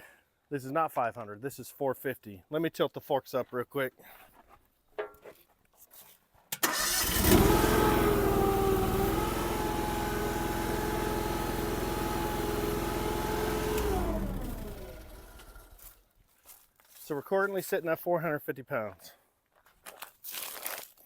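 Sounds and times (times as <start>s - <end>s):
engine starting and running: 6.6s - 15.9s.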